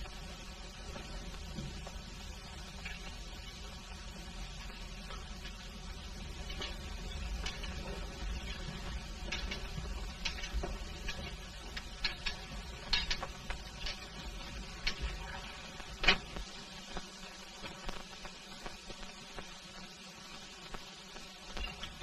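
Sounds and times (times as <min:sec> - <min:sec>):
low steady hum: 0:00.0 - 0:22.0
film soundtrack clicks and crackles: 0:04.4 - 0:18.8.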